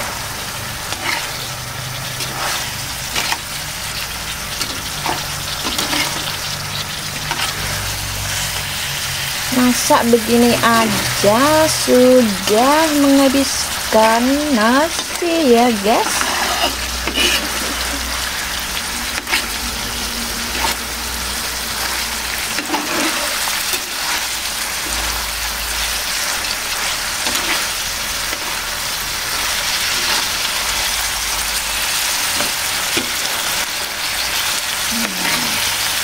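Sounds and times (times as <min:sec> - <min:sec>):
fish sizzling in a frying pan: 0:00.0 - 0:36.0
metal spatula scraping a pan: 0:00.9 - 0:03.4, 0:04.5 - 0:08.6, 0:16.0 - 0:20.9, 0:21.8 - 0:25.2, 0:26.8 - 0:28.6.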